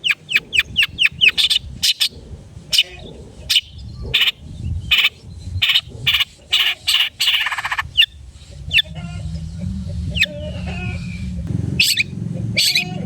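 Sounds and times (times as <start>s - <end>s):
bird giving harsh buzzy calls: 4.2s - 13.0s
low background rumble: 7.1s - 13.0s.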